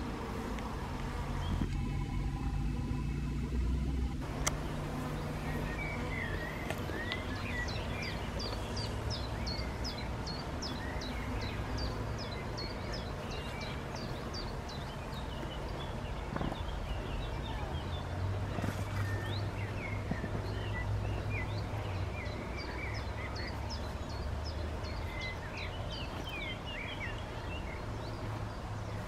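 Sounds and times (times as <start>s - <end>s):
low background rumble: 0.7s - 18.6s.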